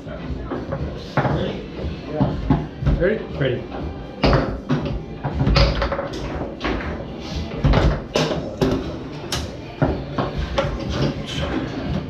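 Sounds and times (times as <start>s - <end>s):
foosball ball knocking: 4.2s - 7.0s, 7.6s - 11.1s.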